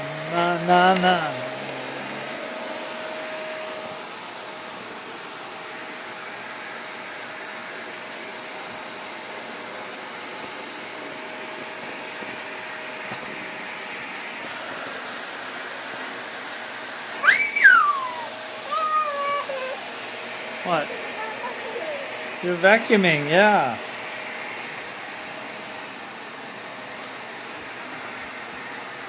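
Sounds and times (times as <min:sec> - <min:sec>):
vacuum cleaner running: 0:00.0 - 0:29.0
high vocal sound: 0:18.0 - 0:19.9.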